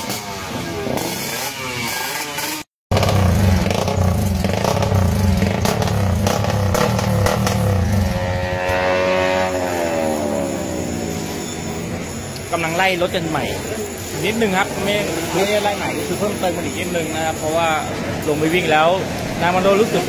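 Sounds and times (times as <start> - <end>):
motorcycle engine running and revving: 0.0 - 12.2.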